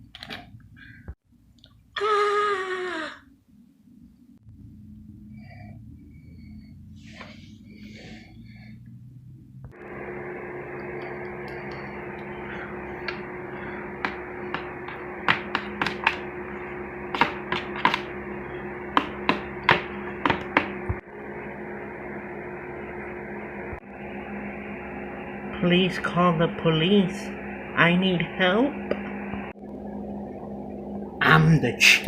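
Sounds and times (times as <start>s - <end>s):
electrical hum: 0.0s - 32.0s
sharp irregular taps: 14.0s - 16.2s, 17.1s - 18.1s.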